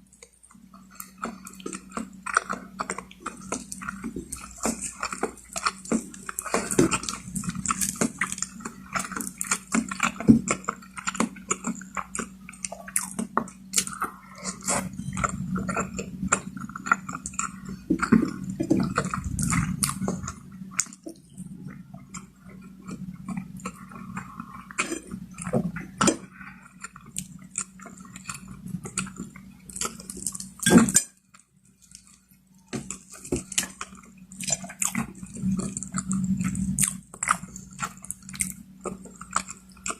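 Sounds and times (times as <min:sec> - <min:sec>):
low hum: 0:00.0 - 0:39.8
chewing and biting food: 0:00.0 - 0:39.9
wet mouth sounds: 0:00.1 - 0:31.0
cutlery clinking on plate: 0:30.6 - 0:31.1.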